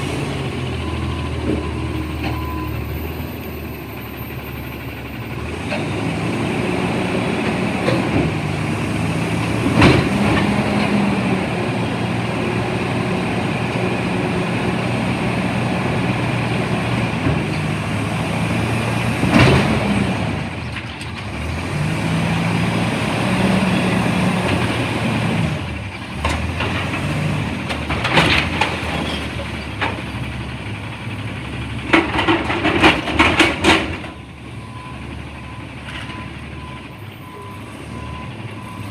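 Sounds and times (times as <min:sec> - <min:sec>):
garbage truck engine: 0:00.0 - 0:38.9.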